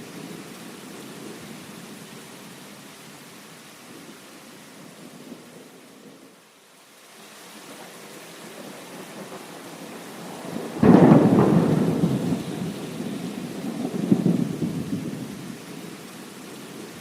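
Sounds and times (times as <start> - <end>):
steady rain: 0.0 - 17.0
thunder rumbling: 8.6 - 15.9.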